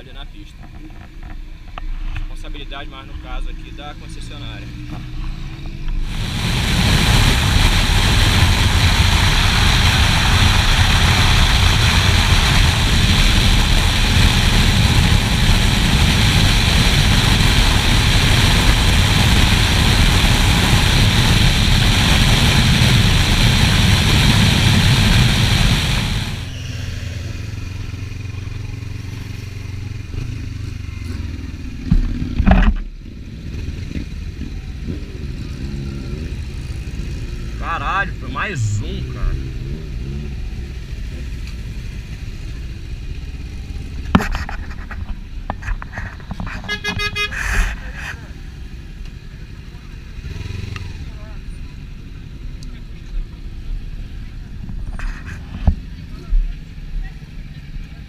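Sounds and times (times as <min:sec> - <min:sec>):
motorcycle engine at speed: 0:03.6 - 0:58.0
wind noise on microphone: 0:05.6 - 0:26.5, 0:44.0 - 0:48.2.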